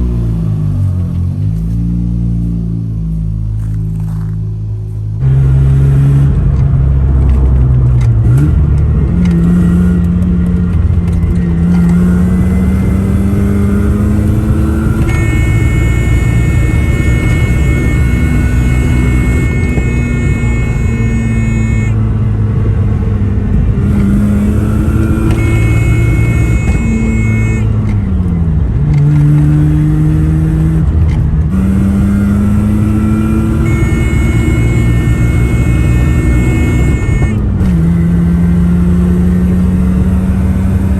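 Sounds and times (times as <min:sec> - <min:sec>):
rotary engine revving: 0:00.0 - 0:40.9
high whine: 0:10.9 - 0:22.2, 0:23.7 - 0:28.4, 0:31.5 - 0:38.1.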